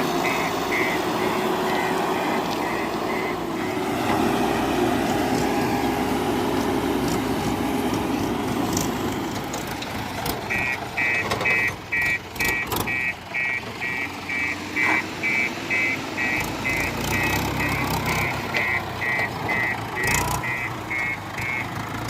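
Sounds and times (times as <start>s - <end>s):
reversing alarm beeping: 0.0s - 4.8s, 10.5s - 21.7s
diesel engine revving: 0.0s - 22.0s.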